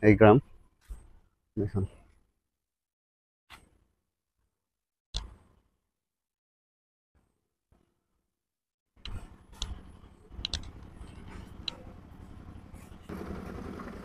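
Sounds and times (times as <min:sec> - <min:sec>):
auto-rickshaw passing: 0:11.9 - 0:14.0.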